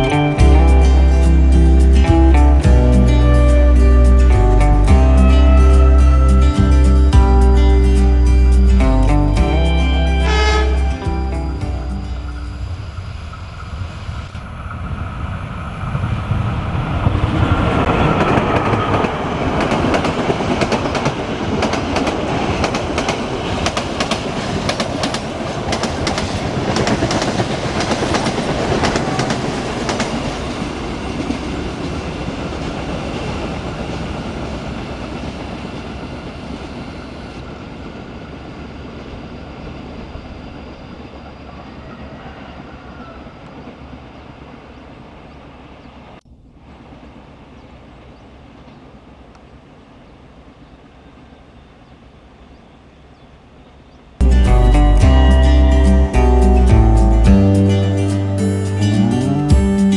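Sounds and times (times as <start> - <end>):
train rumbling past: 0.0 - 59.9
wheels clicking over rail joints: 17.7 - 35.8.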